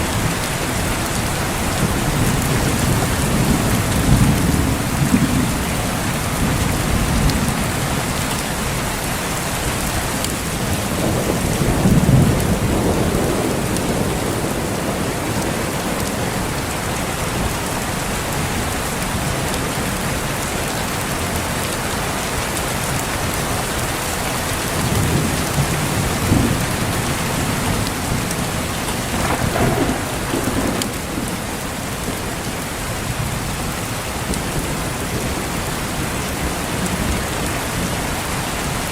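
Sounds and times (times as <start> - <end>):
heavy rain: 0.0 - 38.9
thunder rumbling: 10.3 - 19.8, 24.6 - 38.0.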